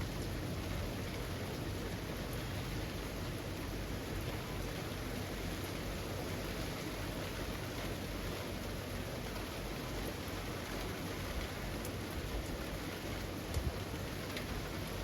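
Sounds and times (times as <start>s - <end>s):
rain falling on leaves: 0.0s - 15.0s
faint drip ticks: 9.4s - 15.0s.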